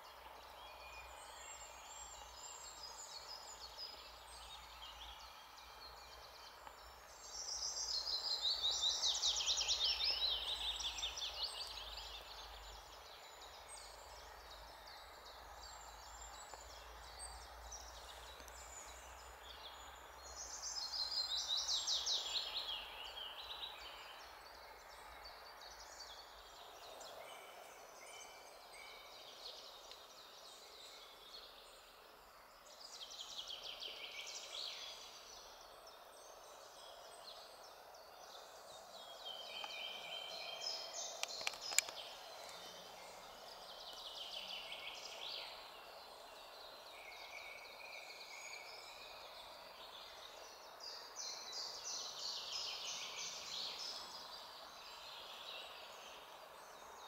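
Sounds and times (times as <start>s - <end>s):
faint background hiss: 0.0s - 57.0s
songbird singing: 0.0s - 57.0s.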